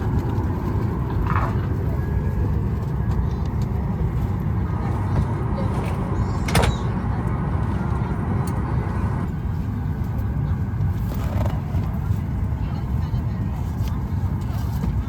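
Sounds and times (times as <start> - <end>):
cabin air-conditioning rumble: 0.0 - 15.0.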